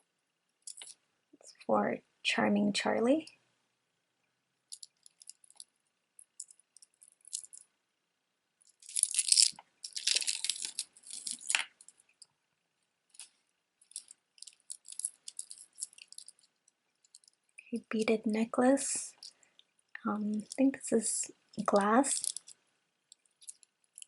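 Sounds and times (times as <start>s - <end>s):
jewelry clicking and clinking: 0.6s - 1.0s, 4.7s - 7.7s, 8.6s - 12.3s, 13.1s - 17.8s, 19.0s - 19.4s, 21.5s - 24.0s.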